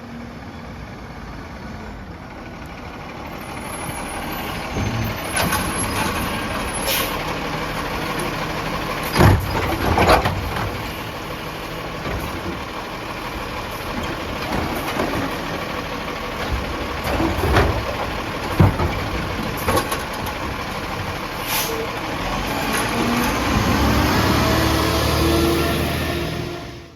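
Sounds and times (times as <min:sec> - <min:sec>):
garbage truck running: 0:00.0 - 0:26.9
loud clunks and bangs: 0:03.9 - 0:07.2, 0:08.1 - 0:11.2, 0:11.8 - 0:13.1, 0:13.8 - 0:21.4
short air hisses: 0:21.4 - 0:21.8.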